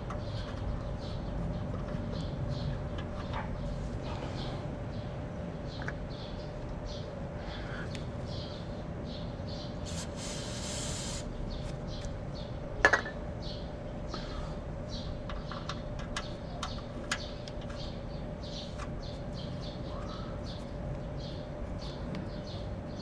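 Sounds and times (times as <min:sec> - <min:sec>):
steady hum: 0:00.0 - 0:23.0
brief hiss: 0:09.9 - 0:11.3
bird chirps: 0:13.4 - 0:23.0.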